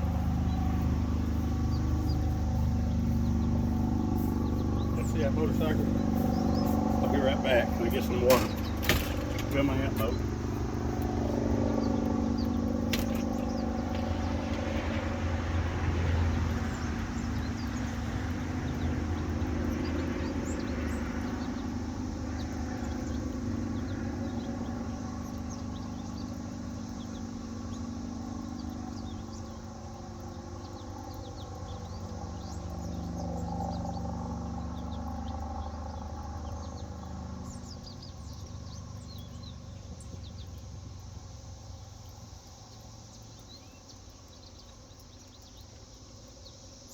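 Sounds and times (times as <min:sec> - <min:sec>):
motorcycle engine running: 0:00.0 - 0:30.0
small birds chirping: 0:00.0 - 0:46.9.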